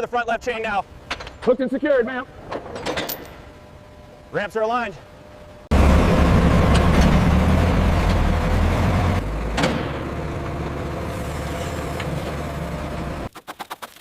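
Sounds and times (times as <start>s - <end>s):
heavy vehicle engine rumbling: 5.7s - 13.3s.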